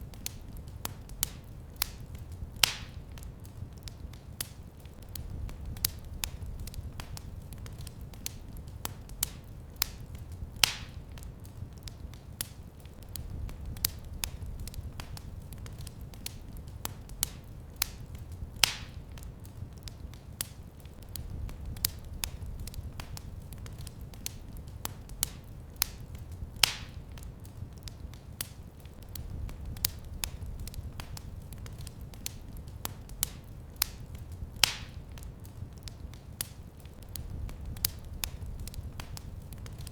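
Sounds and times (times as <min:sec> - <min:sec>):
low rumble of flames: 0:00.0 - 0:39.9
wood fire crackling: 0:00.0 - 0:39.9
loud fire pops: 0:00.1 - 0:39.9.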